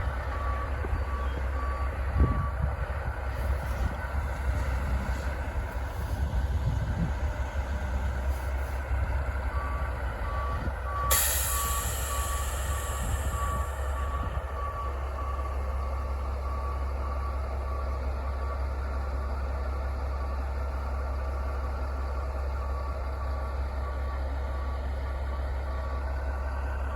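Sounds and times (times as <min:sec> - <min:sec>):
truck engine rumble: 0:00.0 - 0:26.9
truck reversing beeper: 0:00.0 - 0:26.9
air hiss: 0:11.1 - 0:13.4.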